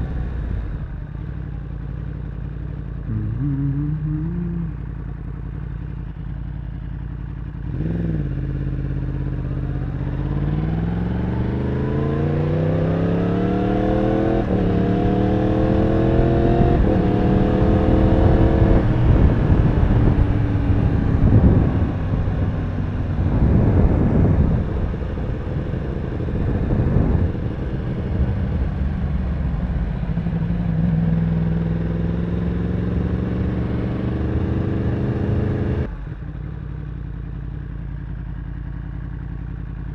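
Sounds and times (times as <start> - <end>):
motorcycle engine accelerating: 0.0 - 39.9
wind buffeting camera: 15.7 - 31.1.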